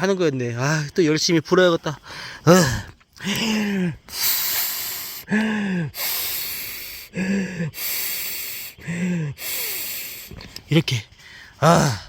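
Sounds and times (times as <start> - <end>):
man gasping for breath: 2.0 - 10.5, 11.2 - 12.0
man blowing into mat valve: 4.1 - 5.3, 5.9 - 8.8, 9.4 - 10.4.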